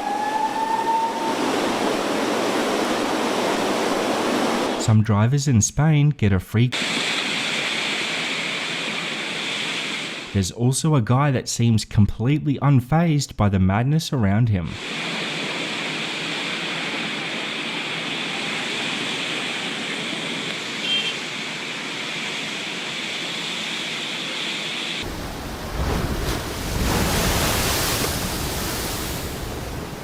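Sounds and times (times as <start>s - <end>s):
sea surf rushing: 0.0s - 4.8s, 6.8s - 10.4s, 14.8s - 30.0s
waves breaking: 0.0s - 4.8s, 6.8s - 10.4s, 14.8s - 30.0s.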